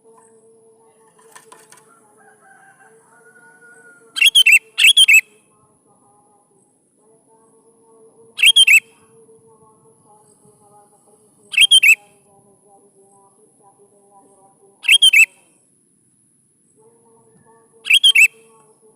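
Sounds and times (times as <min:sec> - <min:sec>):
faint low hum: 0:00.0 - 0:18.9
bulbul singing bubbling phrases: 0:04.0 - 0:15.4, 0:17.0 - 0:18.9.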